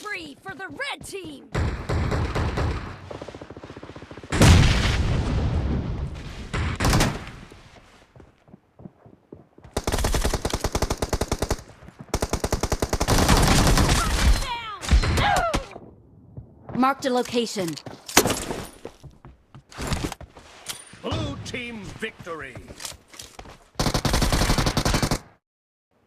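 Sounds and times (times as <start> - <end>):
video game automatic gunfire: 9.8 - 14.2, 23.8 - 25.3.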